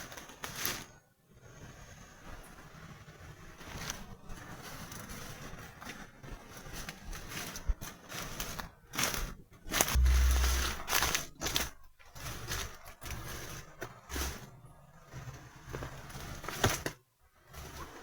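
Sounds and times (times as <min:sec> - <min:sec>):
rustling and scraping: 0:02.5 - 0:18.0
low thump on microphone: 0:10.0 - 0:11.3.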